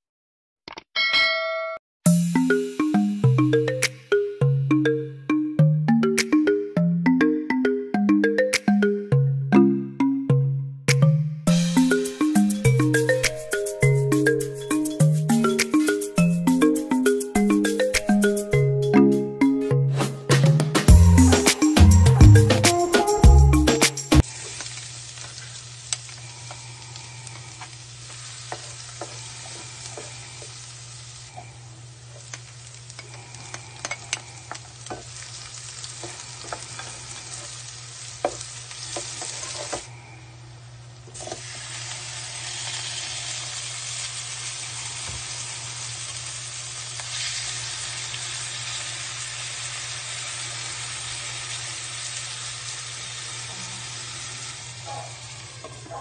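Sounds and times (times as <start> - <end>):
food sizzling in hot oil: 24.2 - 31.4, 32.0 - 39.9, 41.2 - 55.8
spatula scraping pan: 38.9 - 39.9.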